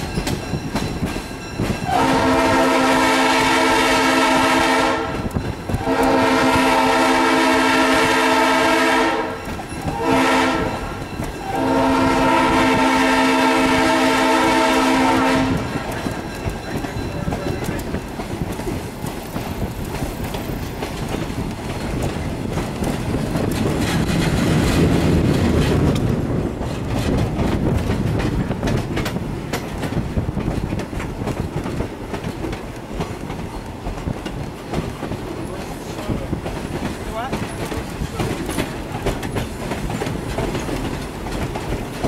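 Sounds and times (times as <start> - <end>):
wheels clicking over rail joints: 0.0 - 2.0, 9.2 - 11.7, 15.2 - 42.0
train rumbling: 0.0 - 42.0.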